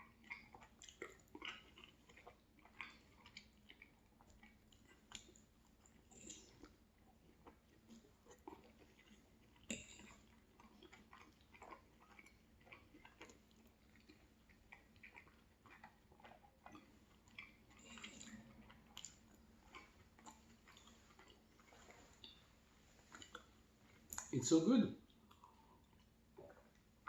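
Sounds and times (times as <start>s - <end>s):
person chewing: 0.0s - 24.4s, 25.0s - 27.0s
wet mouth clicks: 0.3s - 6.8s, 7.5s - 21.4s, 23.1s - 24.3s.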